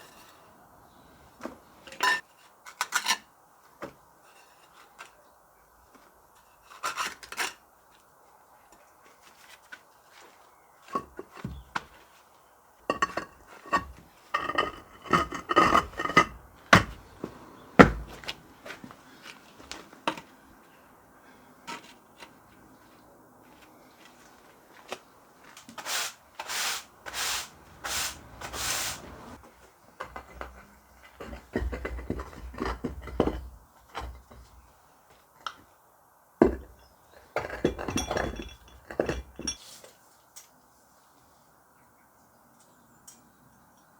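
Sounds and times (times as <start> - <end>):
short scraping strokes: 25.8 - 29.4.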